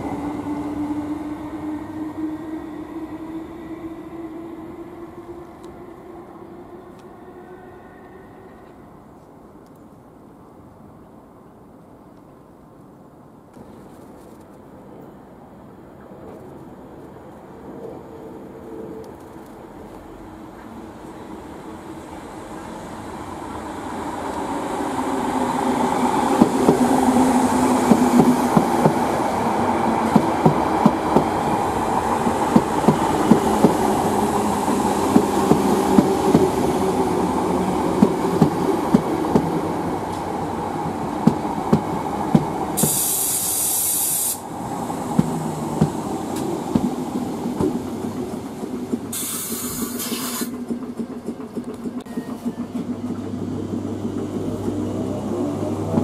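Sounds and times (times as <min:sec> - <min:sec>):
train running: 0:00.0 - 0:56.0
sharp hiss: 0:42.8 - 0:45.5, 0:49.1 - 0:50.6.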